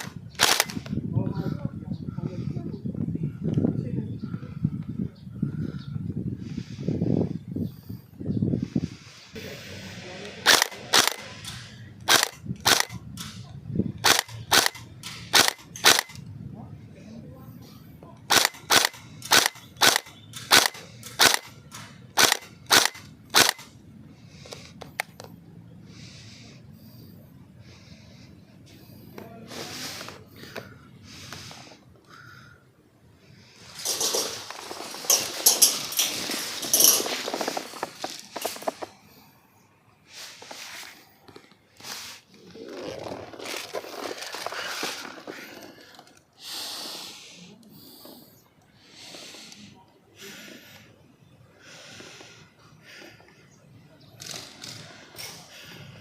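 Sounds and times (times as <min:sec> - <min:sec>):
person breathing heavily: 0:04.1 - 0:12.0, 0:25.6 - 0:42.6, 0:43.4 - 0:53.8, 0:54.4 - 0:56.0
airsoft rifle shots: 0:10.4 - 0:13.3, 0:18.3 - 0:23.7
brief rustles: 0:33.5 - 0:39.1, 0:40.1 - 0:46.2.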